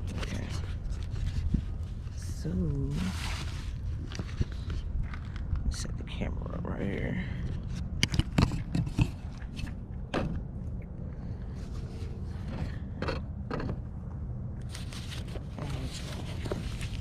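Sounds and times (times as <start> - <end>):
rustles and scrapes: 0.0 - 5.9, 6.8 - 9.9, 11.2 - 12.8, 14.6 - 17.0
steady low rumble: 0.0 - 17.0
handling knocks and clicks: 8.0 - 10.4.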